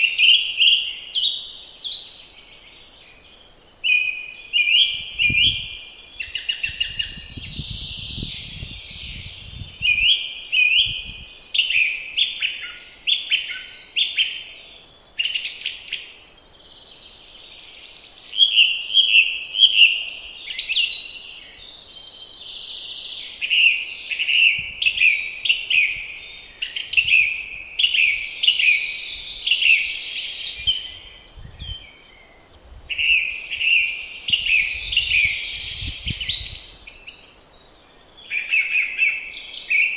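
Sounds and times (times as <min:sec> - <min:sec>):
songbirds singing: 0:00.0 - 0:39.9
wind rumble on microphone: 0:04.8 - 0:11.4, 0:24.6 - 0:28.4, 0:29.0 - 0:37.3.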